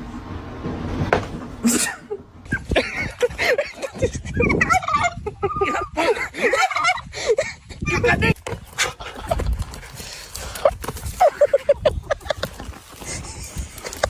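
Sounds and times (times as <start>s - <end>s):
poultry warbling calls: 4.4s - 7.0s.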